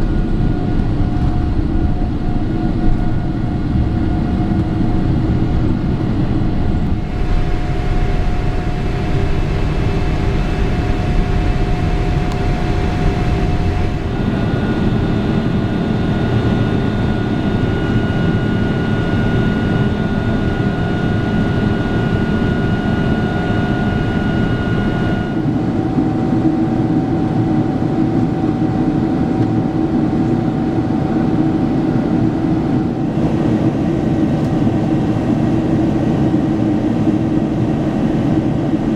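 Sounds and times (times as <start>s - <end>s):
steady whining tones: 0.0s - 26.0s
jet engine rumble and airflow: 0.0s - 38.9s.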